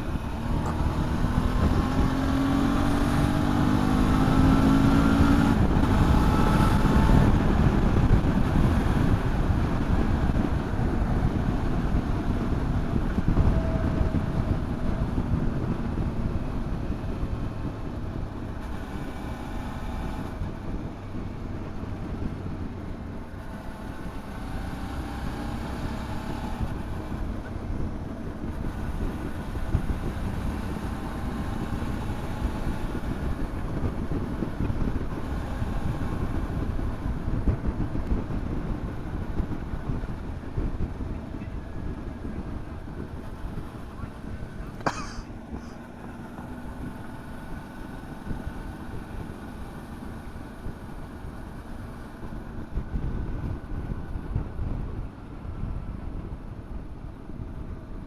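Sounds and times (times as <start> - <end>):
motorcycle engine running: 0.0 - 24.4
wind rushing over microphone: 0.0 - 58.0.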